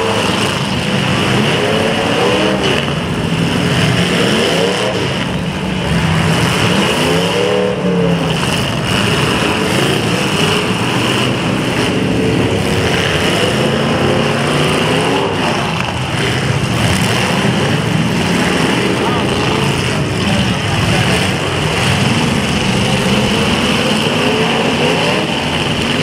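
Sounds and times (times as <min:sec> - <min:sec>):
car engines revving: 0:00.0 - 0:26.0
loud continuous din: 0:00.0 - 0:26.0.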